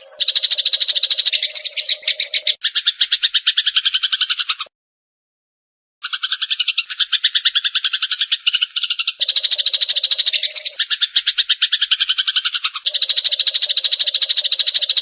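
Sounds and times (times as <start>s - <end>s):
sparrows chattering: 0.0s - 4.7s, 6.0s - 15.0s.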